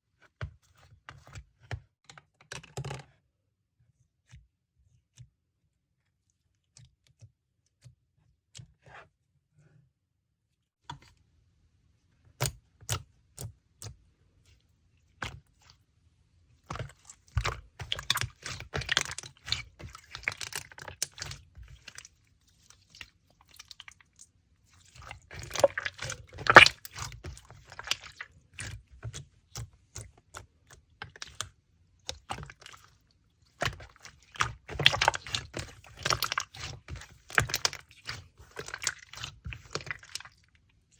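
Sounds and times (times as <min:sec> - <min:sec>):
slime crackling and popping: 0:25.2 - 0:28.2, 0:33.6 - 0:40.2.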